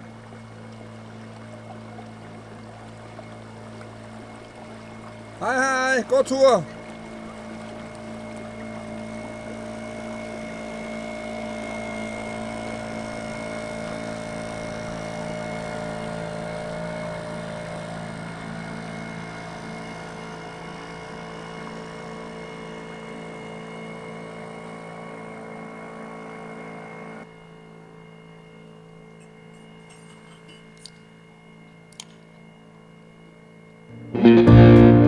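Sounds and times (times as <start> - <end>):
boat engine running: 0.0 - 35.0.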